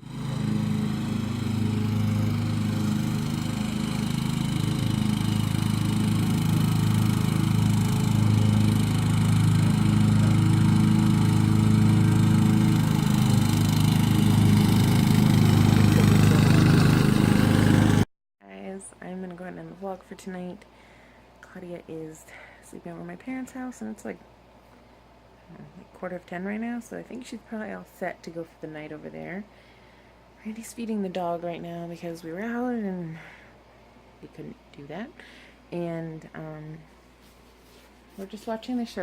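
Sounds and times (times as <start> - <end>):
riding lawn mower engine running: 0.0 - 18.1.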